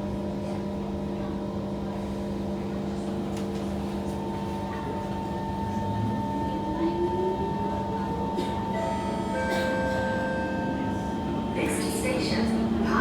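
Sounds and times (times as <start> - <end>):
train electrical hum: 0.0 - 13.0
rising train whine: 5.4 - 13.0.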